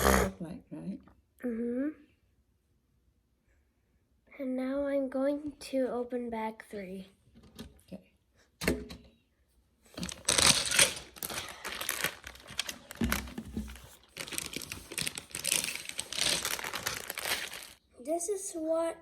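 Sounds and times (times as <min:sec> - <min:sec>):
plastic bag crinkling and tearing: 0:09.9 - 0:17.8.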